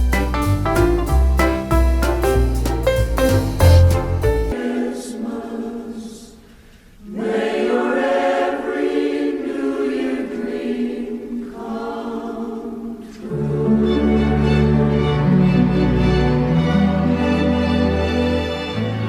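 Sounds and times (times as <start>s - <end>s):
choir singing held chords: 3.7s - 18.8s.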